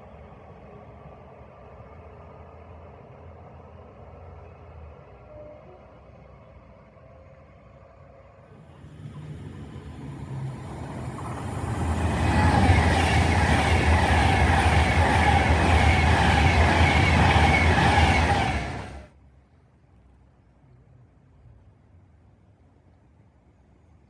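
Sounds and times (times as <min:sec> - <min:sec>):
train passing close by: 0:08.5 - 0:19.1.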